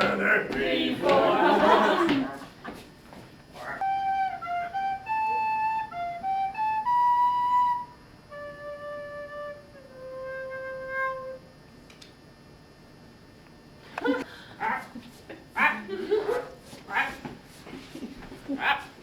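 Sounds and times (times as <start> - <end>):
flute melody: 3.7 - 11.5.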